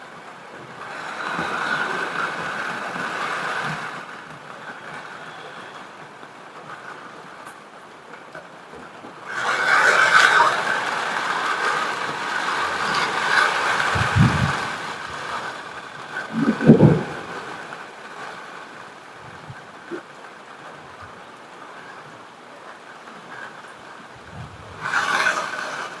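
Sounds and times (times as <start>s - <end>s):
heavy rain hissing: 0.0s - 26.0s
low rumbles of thunder: 16.2s - 17.7s.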